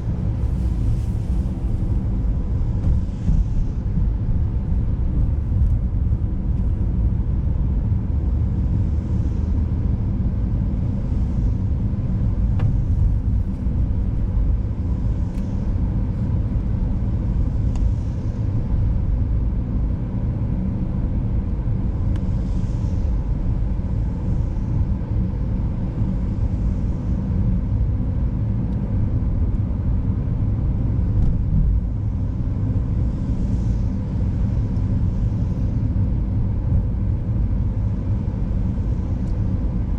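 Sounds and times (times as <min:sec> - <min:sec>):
car driving on icy road: 0:00.0 - 0:09.8.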